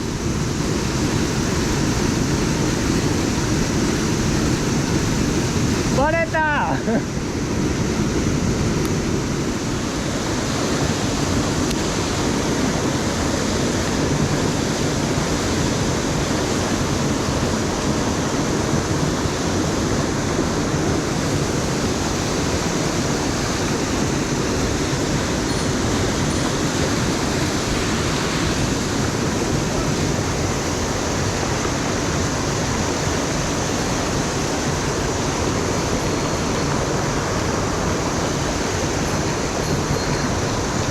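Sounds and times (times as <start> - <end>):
stream rushing: 0.0 - 40.9.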